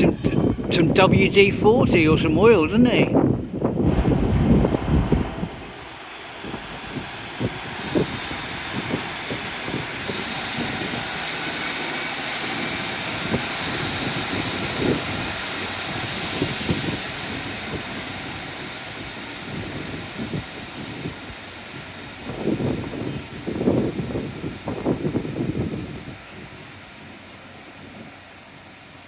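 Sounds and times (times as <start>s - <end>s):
wind buffeting microphone: 0.0s - 27.1s
passenger train running: 0.0s - 29.0s
burst of hissing air: 15.8s - 18.1s.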